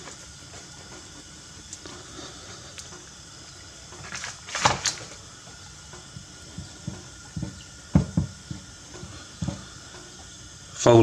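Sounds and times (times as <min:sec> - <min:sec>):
dull knocks and taps: 0:06.5 - 0:09.7.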